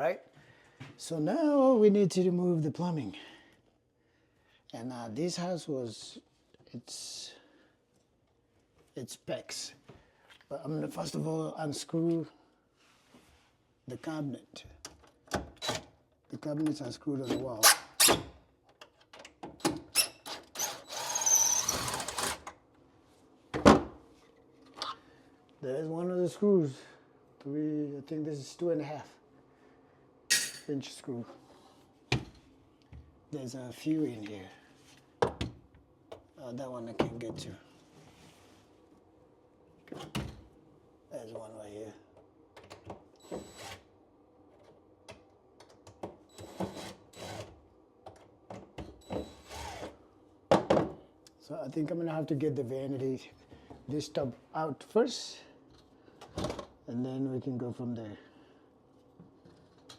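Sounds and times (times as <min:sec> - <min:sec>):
cordless drill running: 0:20.6 - 0:22.4, 0:46.4 - 0:47.5, 0:49.2 - 0:49.9.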